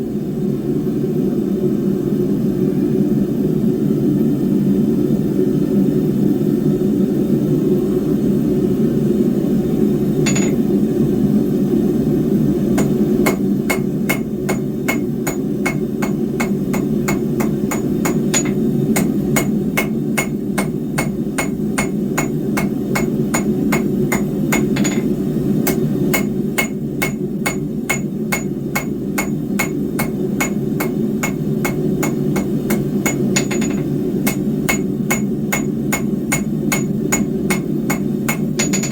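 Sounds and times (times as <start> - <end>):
hammer striking steel on anvil: 10.3 - 10.6, 12.8 - 38.9.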